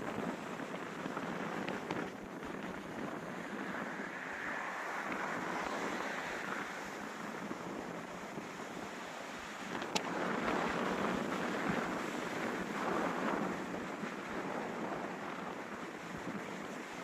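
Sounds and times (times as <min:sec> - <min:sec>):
gusting wind rushing: 0:00.0 - 0:17.0.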